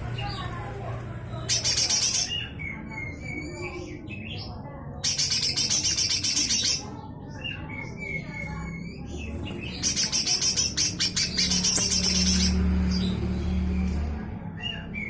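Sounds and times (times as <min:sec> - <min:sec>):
bird rattling calls: 0:09.6 - 0:12.6.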